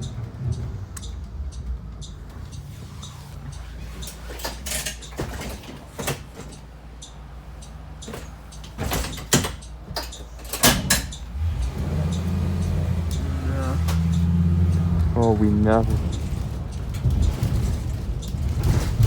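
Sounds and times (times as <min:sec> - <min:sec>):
bus engine hum: 0:00.0 - 0:19.0
clunks and rattles inside bus: 0:00.0 - 0:19.0.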